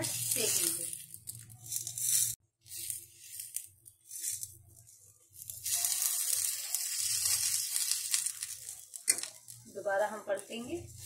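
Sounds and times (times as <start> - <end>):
omelette sizzling in a pan: 0.0 - 11.0.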